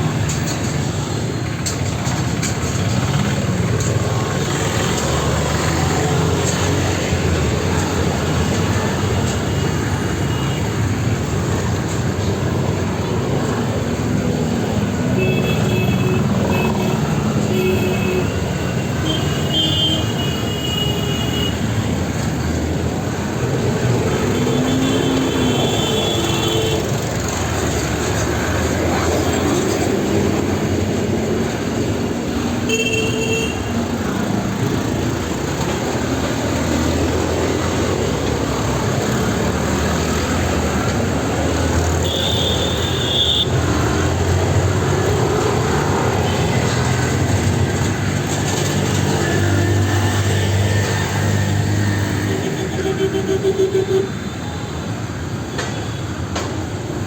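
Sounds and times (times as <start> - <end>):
traffic engines and tyres: 0.0 - 57.0
vehicle horns honking: 32.7 - 33.8, 42.0 - 43.6, 52.4 - 54.7.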